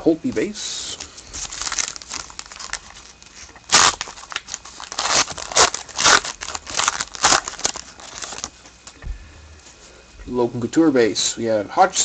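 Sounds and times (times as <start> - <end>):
trading cards rustling: 1.4 - 8.6.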